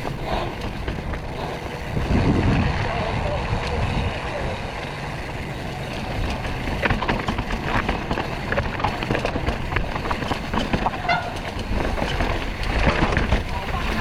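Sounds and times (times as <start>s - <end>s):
bike rattling over rocks: 0.0s - 3.7s, 4.4s - 14.0s
wind rumble on microphone: 0.0s - 4.7s.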